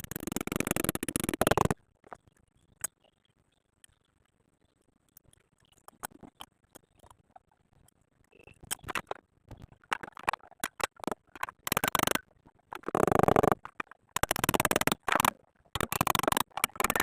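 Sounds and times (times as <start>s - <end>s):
rapid metal rattle: 12.8s - 17.0s.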